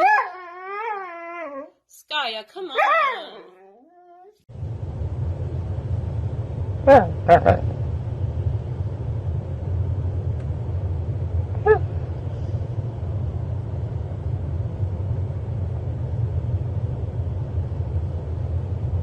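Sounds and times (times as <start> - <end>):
steady low rumble: 4.5 - 19.0.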